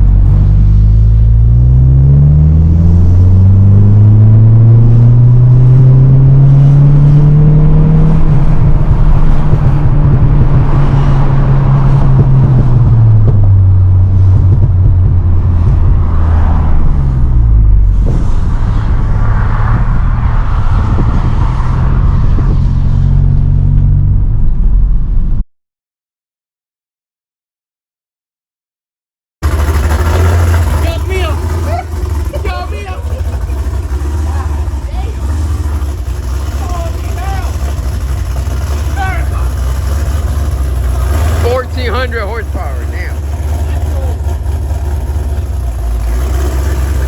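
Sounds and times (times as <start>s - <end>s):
car engine revving: 0.0s - 25.1s, 29.4s - 47.0s.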